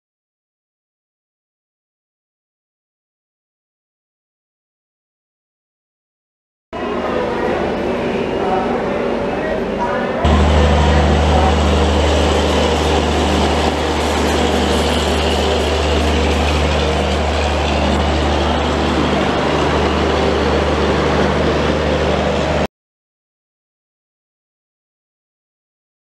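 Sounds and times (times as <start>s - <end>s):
constant low hum: 6.8s - 22.7s
train wheels on rails: 10.3s - 22.7s.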